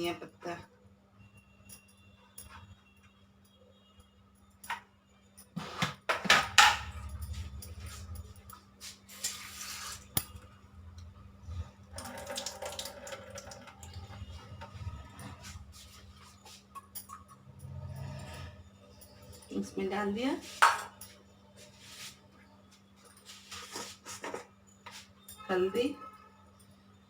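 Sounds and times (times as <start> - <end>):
dishes and utensils clattering: 5.6 - 8.2, 23.5 - 25.0
scraping and knocking against bowl: 23.5 - 25.1.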